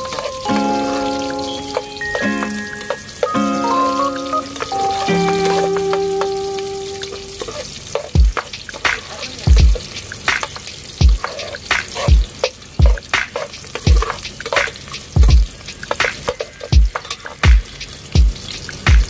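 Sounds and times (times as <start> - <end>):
garlic and onions sizzling: 0.0 - 19.0
metal spatula scraping wok: 11.2 - 12.1.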